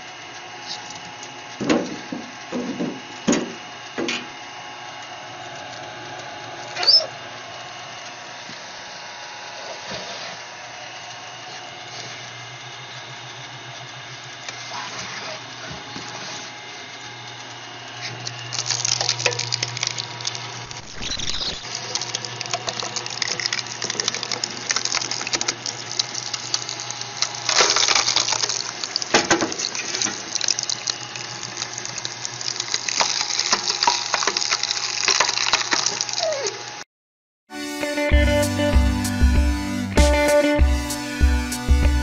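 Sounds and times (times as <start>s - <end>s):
motor humming: 0.0s - 36.8s
wood creaking and cracking: 18.5s - 36.6s.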